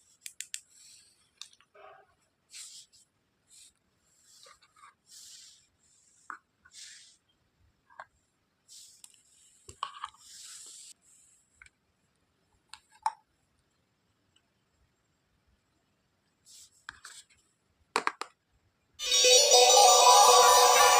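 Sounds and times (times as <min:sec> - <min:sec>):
music: 0:19.0 - 0:20.9.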